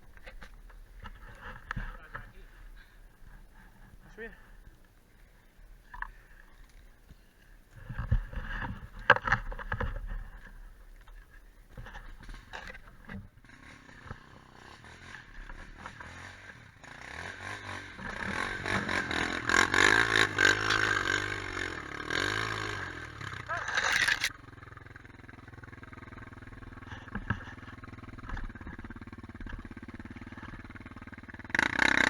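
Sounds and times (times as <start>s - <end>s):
quad bike engine revving: 13.4s - 32.0s.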